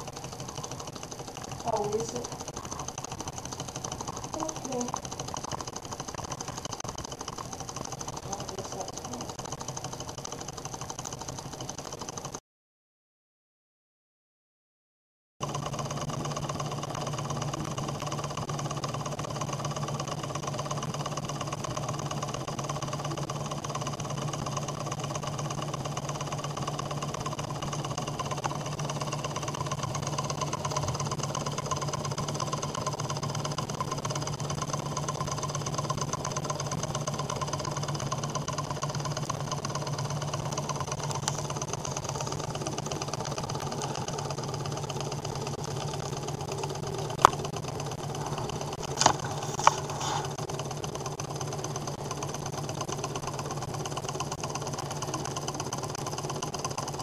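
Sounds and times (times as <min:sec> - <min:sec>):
stirling engine clattering: 0:00.0 - 0:10.3.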